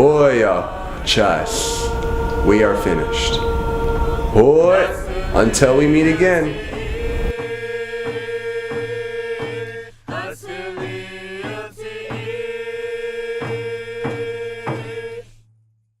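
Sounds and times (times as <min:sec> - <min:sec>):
steady beat: 0:00.0 - 0:15.2
voice chanting long notes: 0:00.0 - 0:15.3.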